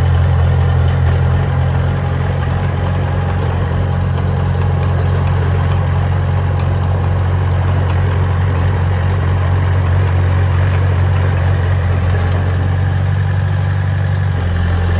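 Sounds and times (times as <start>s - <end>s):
heavy diesel engine rumbling: 0.0s - 14.9s.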